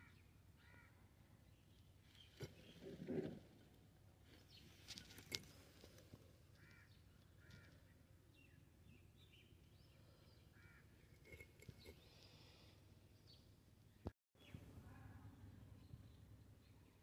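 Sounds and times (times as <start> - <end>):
faint bird calls: 0.0 - 1.0, 6.5 - 8.0, 10.0 - 11.1.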